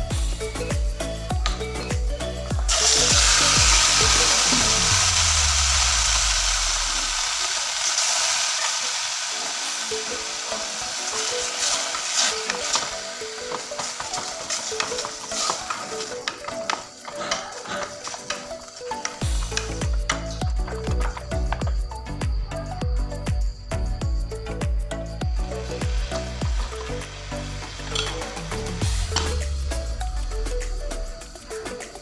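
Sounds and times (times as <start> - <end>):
meat sizzling in hot oil: 2.7 - 16.4, 25.4 - 29.3.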